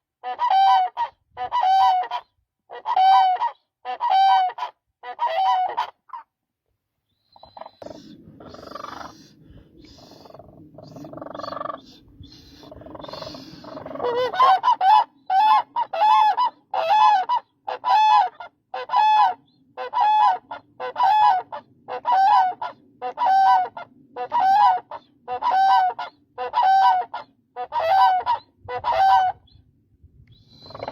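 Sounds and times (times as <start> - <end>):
crane calling: 7.3 - 29.5, 30.6 - 30.9.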